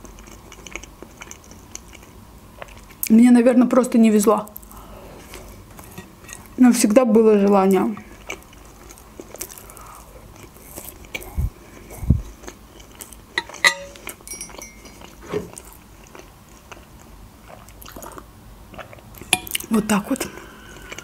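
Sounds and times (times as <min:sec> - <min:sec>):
chewing soft meat: 0:00.0 - 0:03.1, 0:08.0 - 0:21.0
fork knocking against a plate: 0:13.4 - 0:15.4.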